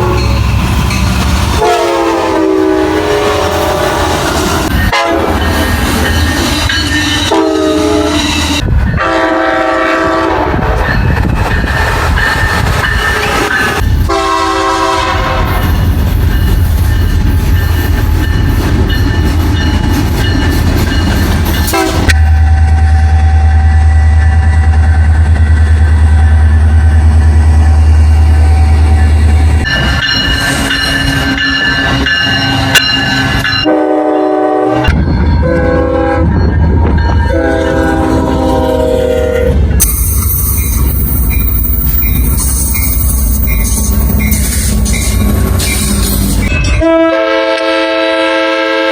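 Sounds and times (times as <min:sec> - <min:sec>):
passing train rumble and clatter: 0:00.0 - 0:48.9
train air horn blasts: 0:01.6 - 0:05.4, 0:07.2 - 0:10.6, 0:14.1 - 0:15.7, 0:21.7 - 0:25.1, 0:33.6 - 0:36.4, 0:37.2 - 0:39.6, 0:46.7 - 0:48.9.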